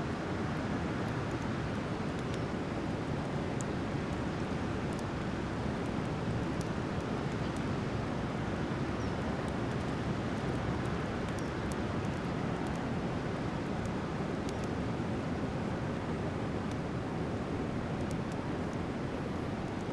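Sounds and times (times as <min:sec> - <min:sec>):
campfire crackles and pops: 0:09.3 - 0:15.0.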